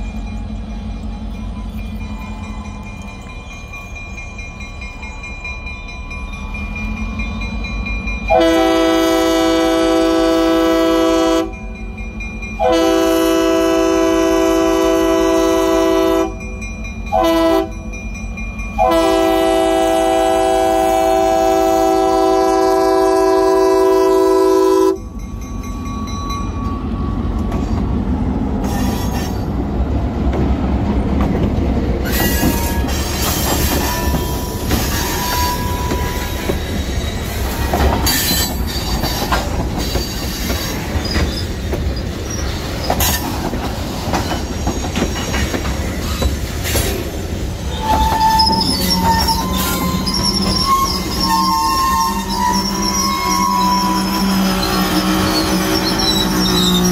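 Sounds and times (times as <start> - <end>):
locomotive air horn: 8.3 - 11.6, 12.6 - 16.4, 17.1 - 17.7, 18.8 - 25.0, 47.7 - 56.9
wheels clicking on rail joints: 25.0 - 56.9
wheels squealing: 32.0 - 56.9.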